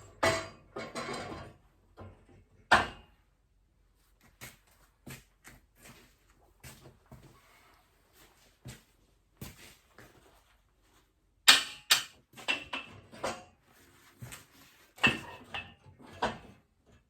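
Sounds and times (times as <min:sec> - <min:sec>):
metal parts knocking and clanking: 0:00.0 - 0:03.0.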